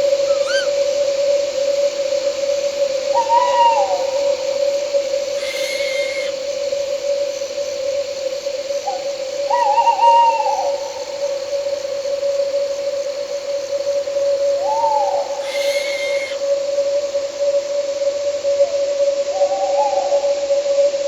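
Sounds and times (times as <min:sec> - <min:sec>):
owl hooting: 0:00.0 - 0:01.4, 0:03.0 - 0:06.8, 0:08.8 - 0:17.1
crickets and night insects: 0:00.0 - 0:21.0
brief higher call: 0:05.4 - 0:06.4, 0:15.4 - 0:16.4.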